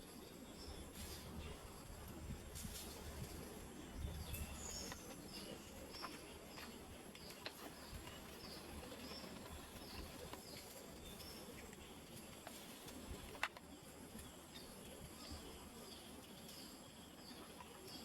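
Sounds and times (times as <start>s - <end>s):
small bird chirping: 4.0s - 18.0s.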